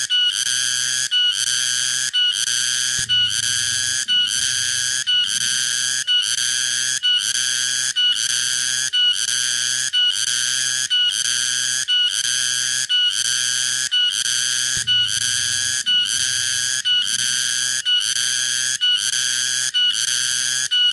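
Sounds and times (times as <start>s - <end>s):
cicada buzzing song: 13.3s - 20.8s.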